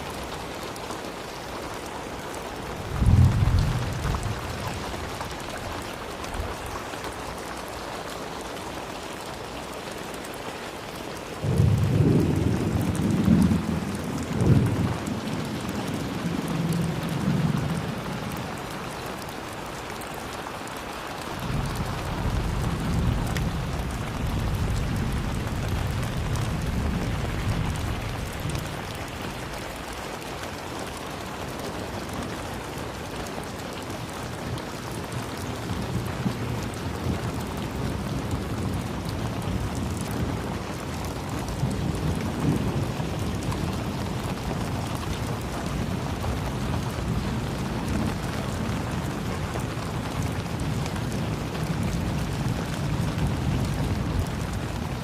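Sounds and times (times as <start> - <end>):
rain falling: 0.0 - 55.0
thunder rumbling: 2.8 - 5.8, 11.4 - 18.7, 21.4 - 29.9.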